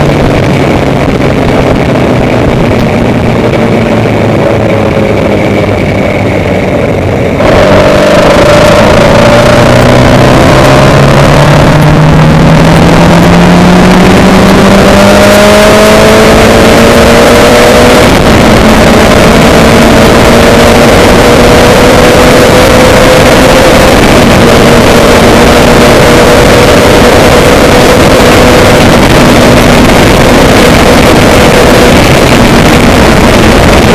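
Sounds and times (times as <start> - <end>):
loud constant rushing noise: 0.0 - 33.9
vehicle engine accelerating: 0.0 - 33.9.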